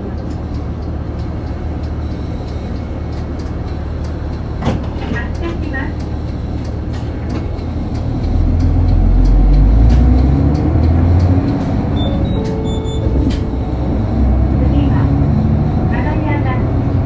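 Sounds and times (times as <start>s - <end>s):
bus diesel engine rumble: 0.0s - 17.0s
high electronic tones: 11.9s - 14.9s.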